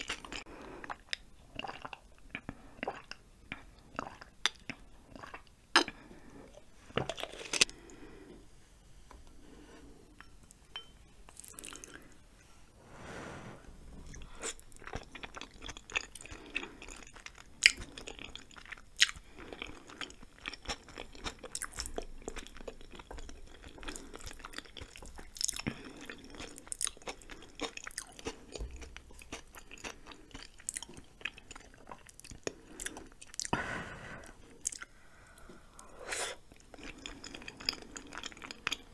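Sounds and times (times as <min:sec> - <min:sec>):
chewing noodles: 0:00.0 - 0:08.0, 0:14.1 - 0:33.6, 0:34.3 - 0:34.9, 0:36.3 - 0:38.9.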